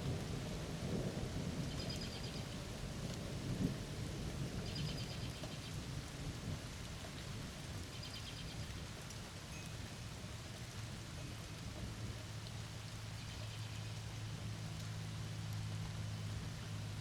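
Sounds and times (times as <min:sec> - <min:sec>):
low thunder rumble: 0:00.0 - 0:04.8
steady rain falling: 0:00.0 - 0:17.0.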